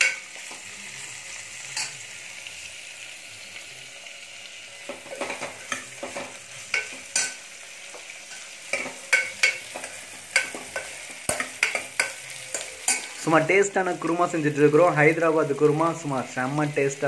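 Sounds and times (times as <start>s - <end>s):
food sizzling in oil: 0.0s - 17.0s
ladle scraping and clinking pot: 4.9s - 7.4s.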